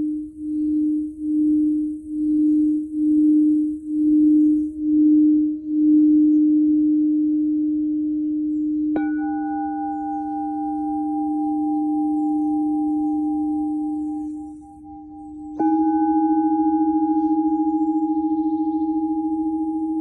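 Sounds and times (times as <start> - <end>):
low singing bowl tone: 0.0 - 20.0
higher singing bowl ringing: 8.9 - 20.0.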